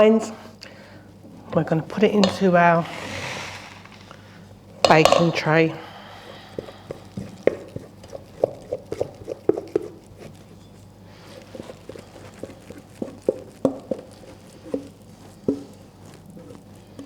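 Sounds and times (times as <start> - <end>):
wooden spoon tapping a bowl: 2.2 - 2.6, 4.9 - 5.5.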